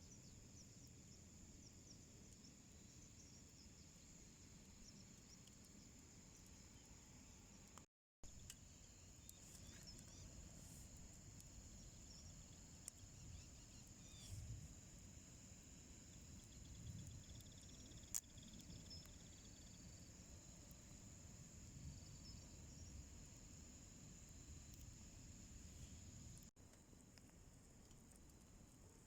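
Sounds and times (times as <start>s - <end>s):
insect chorus: 0.0s - 26.5s
cricket-like trill: 8.3s - 26.5s.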